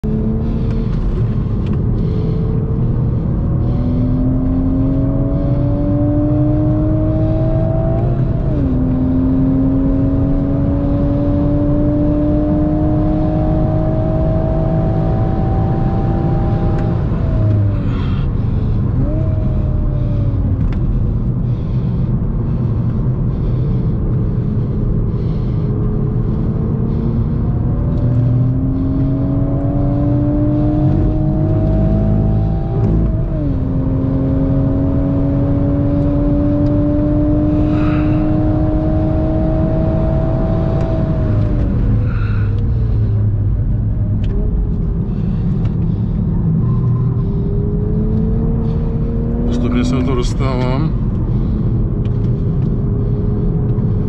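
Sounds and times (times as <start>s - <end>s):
car engine accelerating hard: 0.0s - 54.0s
road and tyre rumble: 0.0s - 54.0s.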